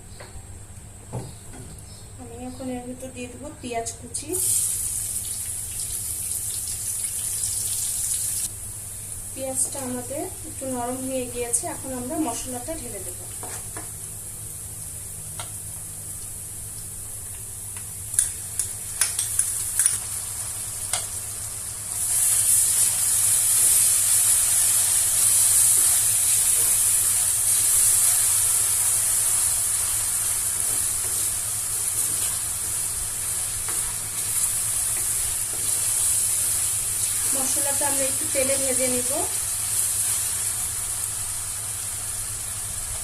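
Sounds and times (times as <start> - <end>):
oil sizzling in a pan: 4.2 - 43.0
spoon clicking against pan: 17.8 - 20.0.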